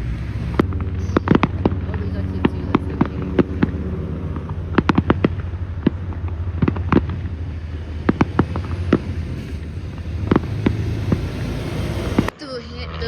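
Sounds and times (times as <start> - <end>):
fireworks cracking: 0.0 - 12.4
steady low rumble: 0.0 - 13.0.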